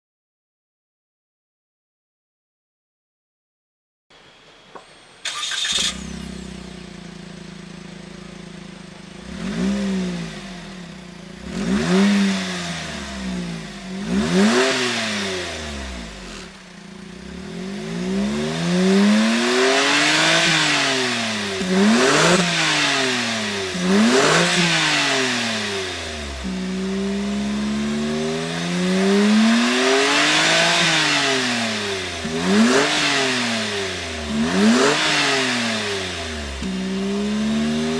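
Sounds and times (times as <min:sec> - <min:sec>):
car engine starting and revving: 0:04.8 - 0:37.9.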